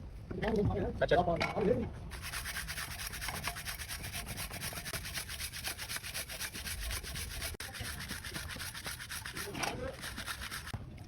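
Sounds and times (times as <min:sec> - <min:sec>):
hand scrubbing metal plate: 0:02.1 - 0:10.8.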